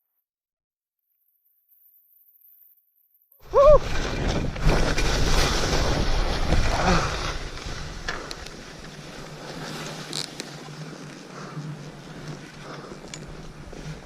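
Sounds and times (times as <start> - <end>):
skis hissing over snow: 3.4 - 14.0.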